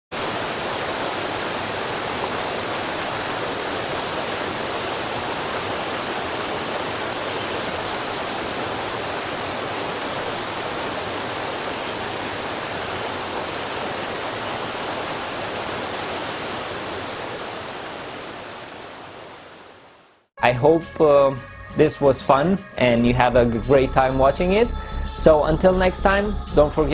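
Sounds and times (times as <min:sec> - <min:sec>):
rushing water: 0:00.1 - 0:20.3.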